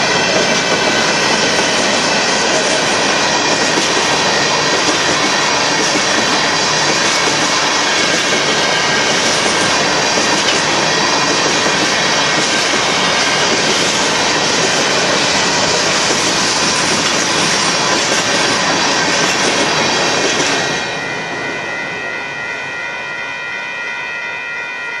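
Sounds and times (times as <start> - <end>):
freight train rolling past: 0.0 - 25.0
high-pitched ringing tones: 20.5 - 25.0.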